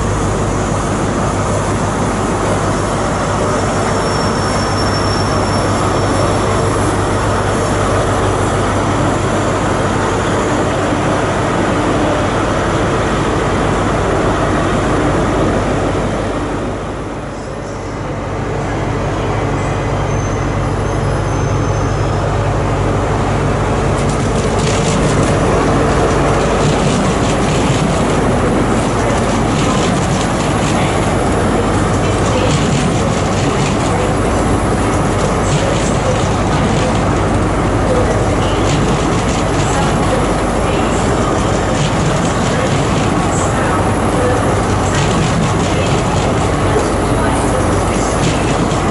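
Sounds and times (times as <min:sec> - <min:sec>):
train rumble and hum: 0:00.0 - 0:48.9
wheel squeal: 0:03.9 - 0:06.3
rapid rail clatter: 0:23.2 - 0:48.9.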